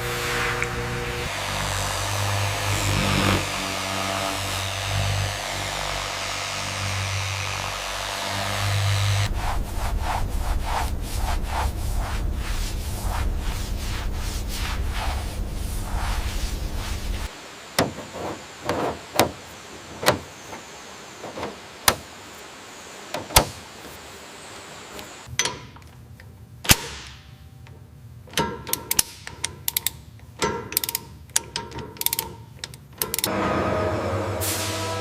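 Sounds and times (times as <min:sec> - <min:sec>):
sharp mechanical clicks: 0:30.7 - 0:33.3.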